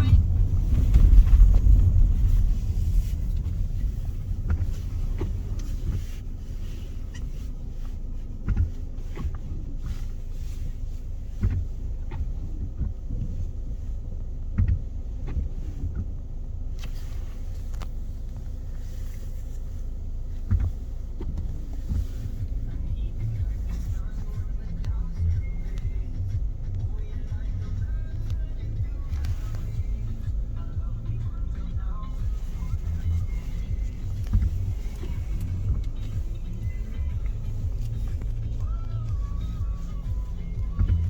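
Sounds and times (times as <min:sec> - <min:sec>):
low rumble: 0:00.0 - 0:41.0.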